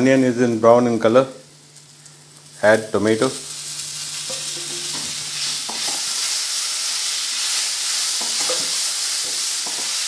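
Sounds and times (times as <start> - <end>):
vegetables sizzling in oil: 0.0 - 10.0
spatula scraping a pan: 4.2 - 6.4, 7.4 - 10.0.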